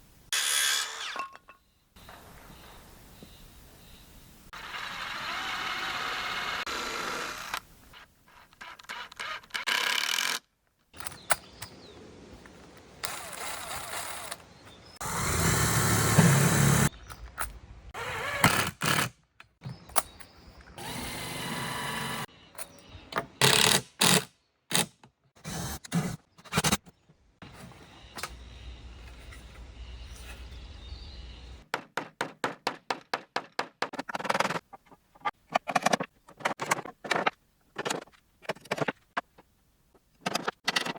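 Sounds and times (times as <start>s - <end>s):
power drill running: 4.6s - 7.6s, 15.0s - 16.9s, 20.8s - 22.3s.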